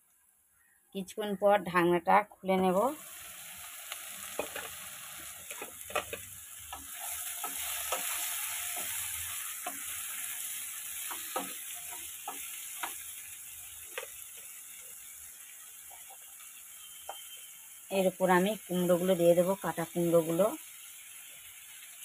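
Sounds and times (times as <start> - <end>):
vegetables sizzling in oil: 1.8 - 22.0
spatula scraping pan: 4.3 - 13.1.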